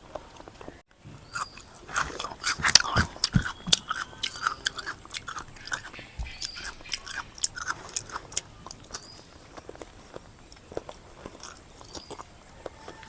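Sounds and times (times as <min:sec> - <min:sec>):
person chewing food: 0:00.0 - 0:13.0
wet mouth clicks and smacks: 0:01.5 - 0:09.9.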